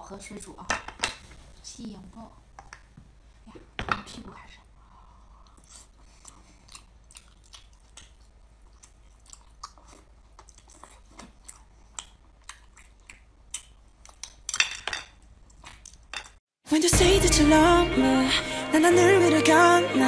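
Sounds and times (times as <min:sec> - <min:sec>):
wet chewing and smacking: 0:05.4 - 0:14.6.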